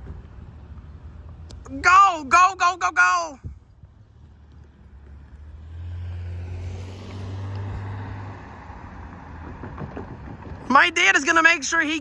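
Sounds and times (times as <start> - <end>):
car driving past: 4.0 - 11.0.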